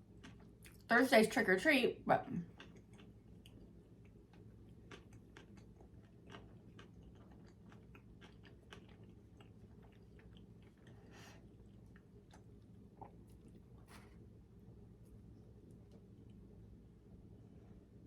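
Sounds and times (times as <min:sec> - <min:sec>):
chewing with mouth clicks: 0:00.0 - 0:00.9, 0:02.4 - 0:14.3, 0:15.0 - 0:16.6
low steady hum: 0:00.0 - 0:18.0.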